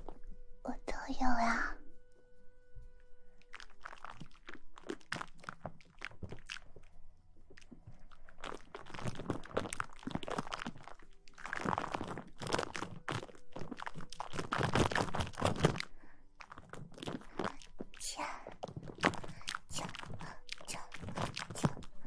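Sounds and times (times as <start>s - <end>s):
crackly scratching against microphone: 3.4s - 22.0s.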